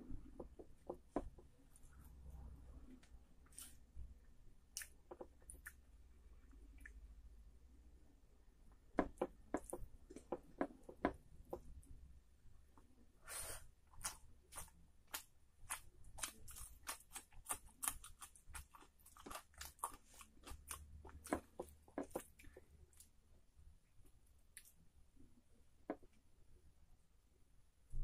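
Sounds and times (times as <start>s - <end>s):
wet chewing: 13.9s - 23.2s.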